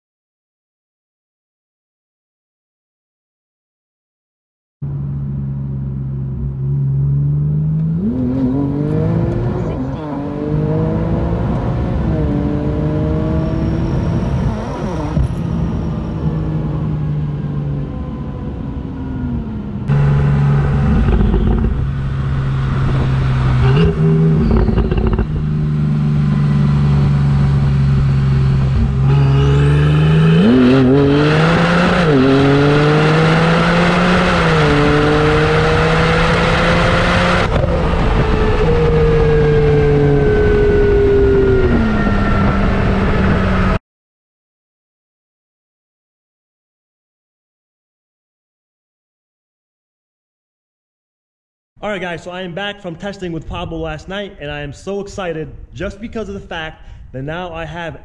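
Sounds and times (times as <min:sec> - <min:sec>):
car engine from inside cabin: 0:04.8 - 0:43.8.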